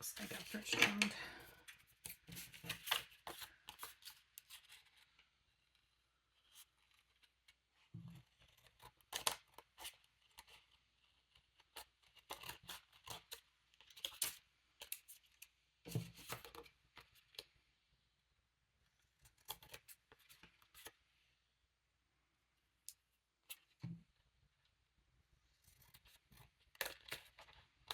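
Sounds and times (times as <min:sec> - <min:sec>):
scissors snipping paper: 0:11.3 - 0:15.1, 0:25.7 - 0:27.9.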